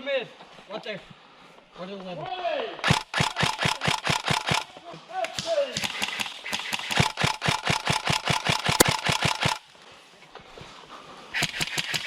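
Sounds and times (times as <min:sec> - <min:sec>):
airsoft rifle firing full auto: 0:02.8 - 0:04.7, 0:05.8 - 0:09.6.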